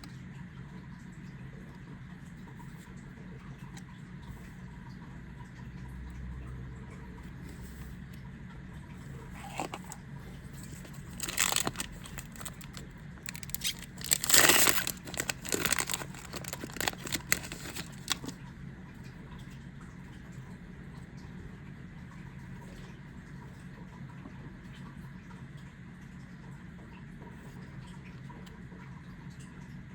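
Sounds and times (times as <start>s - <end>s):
foil wrapper ripping: 9.4s - 10.0s, 10.6s - 18.4s
wrapper crinkling: 9.4s - 18.4s.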